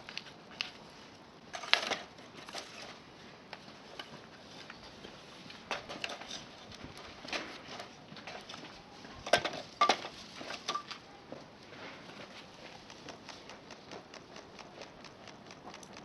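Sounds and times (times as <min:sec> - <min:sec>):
tableware clicking and clinking: 0:09.3 - 0:11.0.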